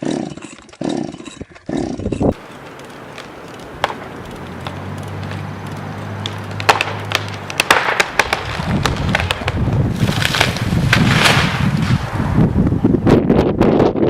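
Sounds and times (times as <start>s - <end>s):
wood cracking and splintering: 2.3s - 12.4s
crash of falling branches: 2.4s - 12.6s.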